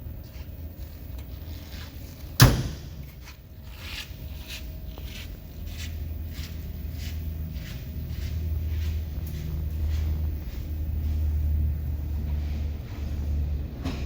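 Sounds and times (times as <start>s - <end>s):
low steady rumble: 0.0s - 14.0s
loud slam: 2.4s - 3.2s.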